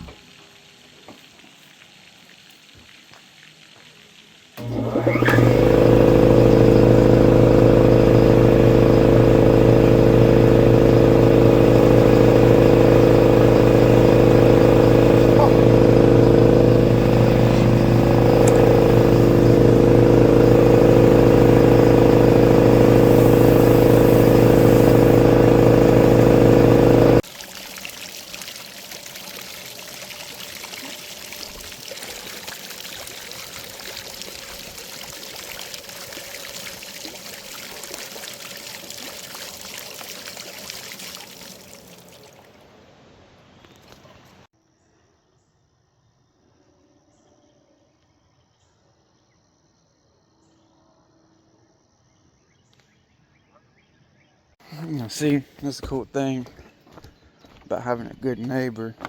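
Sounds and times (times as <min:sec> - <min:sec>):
running water: 0:00.0 - 0:42.7
air compressor motor running: 0:04.6 - 0:27.4, 0:29.6 - 0:41.9.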